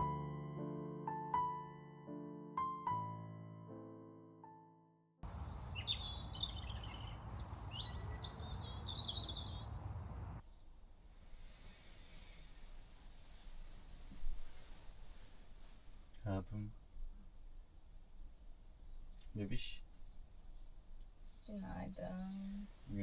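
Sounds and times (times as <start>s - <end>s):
small birds chirping: 5.2s - 23.0s
steady outdoor hiss: 5.2s - 23.0s.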